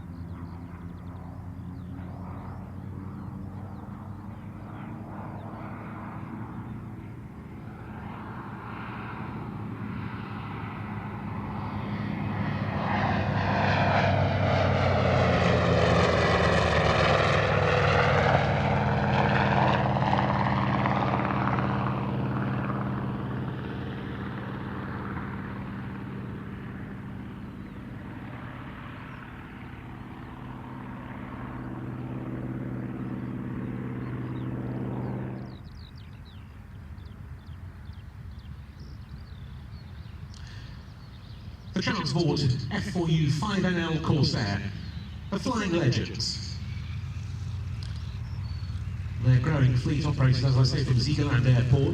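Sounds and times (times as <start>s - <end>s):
propeller plane flying past: 0.0s - 51.9s.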